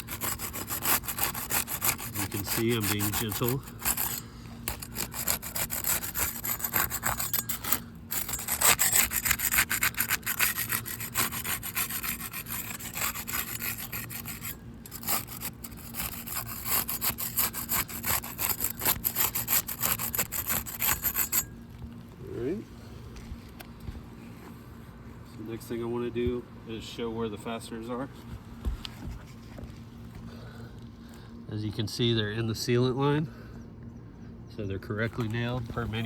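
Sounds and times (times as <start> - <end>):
putty knife scraping shingles: 0.0 - 21.5.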